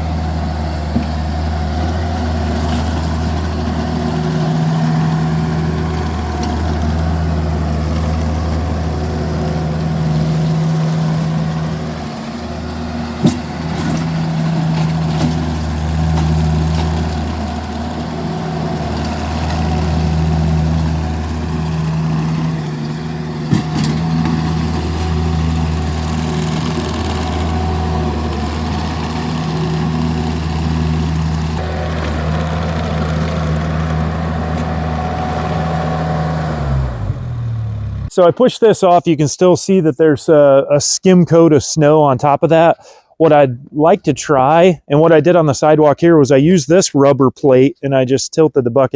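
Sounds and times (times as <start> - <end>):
small loader engine running: 0.0 - 38.6.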